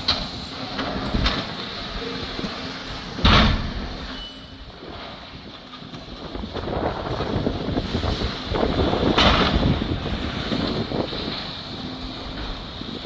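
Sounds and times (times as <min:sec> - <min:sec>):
rough rumbling clatter: 0:00.0 - 0:13.0
building crashing down: 0:06.3 - 0:11.4.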